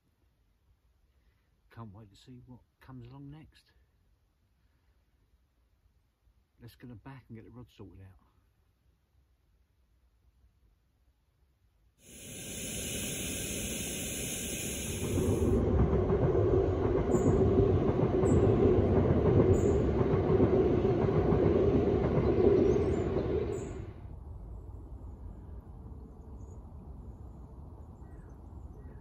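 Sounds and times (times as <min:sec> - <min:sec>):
high hiss: 0:12.0 - 0:15.6
steady hum: 0:12.0 - 0:15.9
train crossing a bridge: 0:12.1 - 0:28.0.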